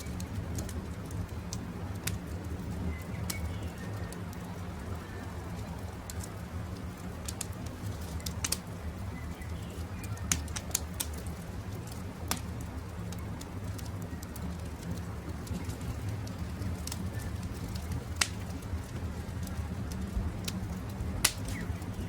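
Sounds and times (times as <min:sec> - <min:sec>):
campfire crackling and popping: 0:00.0 - 0:22.0
birds calling: 0:21.3 - 0:22.0.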